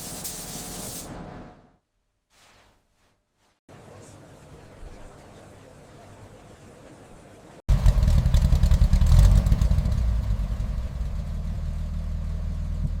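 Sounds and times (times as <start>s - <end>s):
car engine running: 7.7s - 13.0s.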